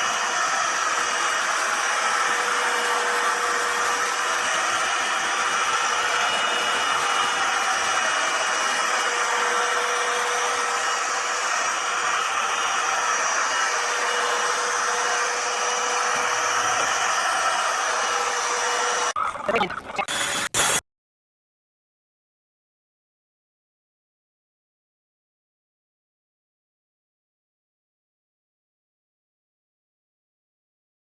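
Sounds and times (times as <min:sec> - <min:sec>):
stick vacuum running: 0:00.0 - 0:20.8.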